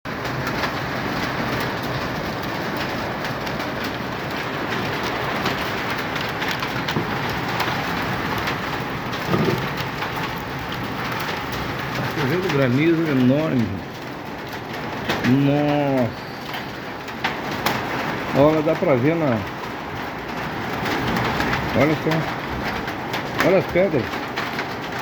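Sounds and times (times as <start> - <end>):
hailstones striking hard surfaces: 0.1 - 25.0
rain and hail rushing: 0.1 - 25.0.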